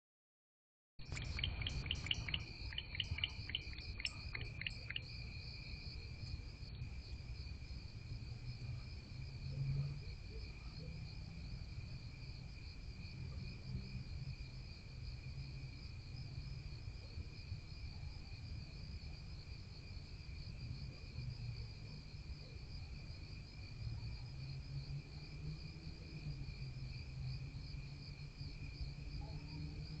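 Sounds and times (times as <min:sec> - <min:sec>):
crickets singing: 0:01.0 - 0:06.9.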